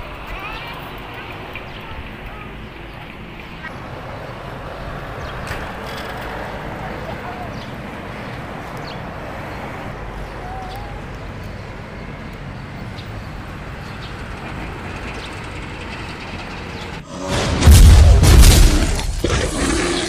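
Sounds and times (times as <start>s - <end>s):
steady rushing rumbling noise: 14.4s - 19.5s.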